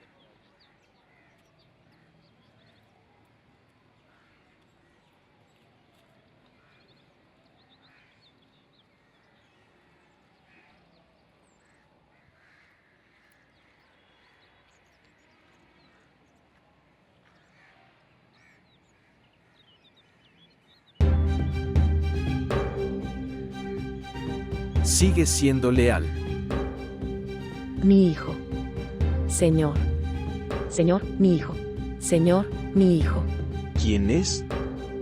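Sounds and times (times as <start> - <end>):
bird calls and chirps: 0.0 - 16.6, 17.2 - 21.0
loud music: 21.0 - 35.0.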